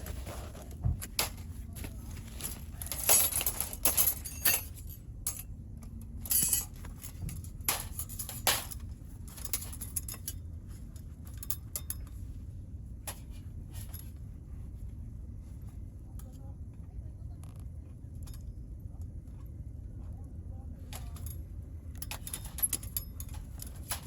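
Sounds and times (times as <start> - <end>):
thin metal parts clinking: 2.2 - 10.4, 22.0 - 24.0.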